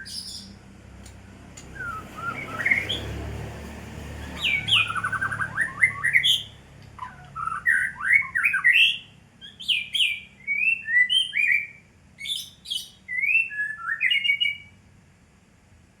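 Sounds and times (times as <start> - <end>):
bird singing whistled song: 0.0 - 0.6, 1.6 - 3.2, 4.2 - 14.8.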